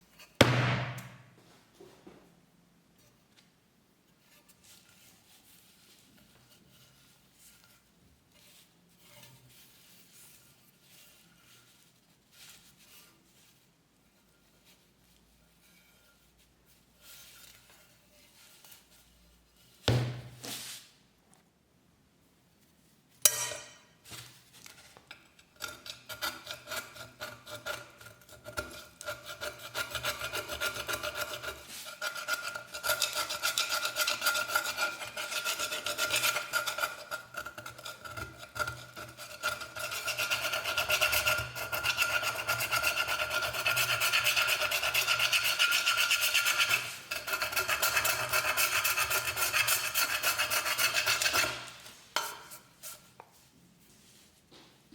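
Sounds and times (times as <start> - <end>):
sharp knocks: 0.4 - 1.2, 19.9 - 20.4
scraping on metal cup: 25.4 - 53.2.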